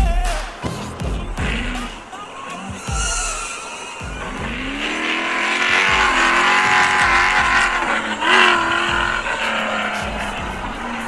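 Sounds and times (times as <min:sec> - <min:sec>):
monster truck engine revving: 0:03.2 - 0:11.0.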